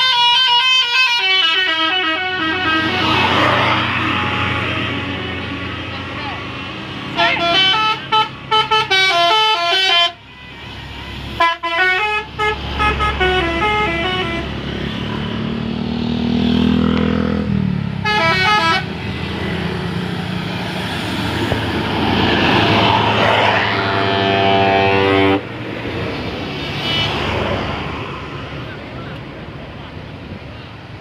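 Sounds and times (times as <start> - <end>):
multi-tone bus horn melodies: 0.0 - 6.0, 7.1 - 14.6, 18.0 - 19.2, 22.8 - 25.6, 26.6 - 27.5.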